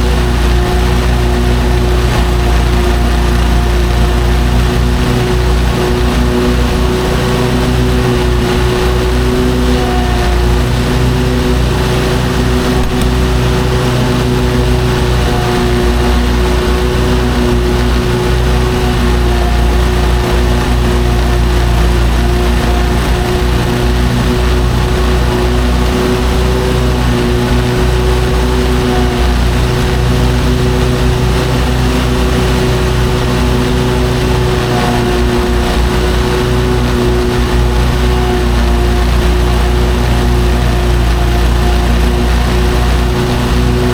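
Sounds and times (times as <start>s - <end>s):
lawn mower engine droning: 0.0s - 43.9s.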